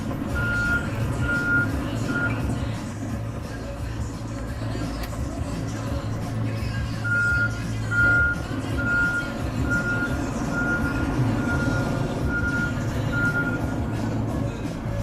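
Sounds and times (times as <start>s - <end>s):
tractor engine running: 0.0s - 15.0s
backup alarm beeping: 0.3s - 2.6s, 7.0s - 13.7s.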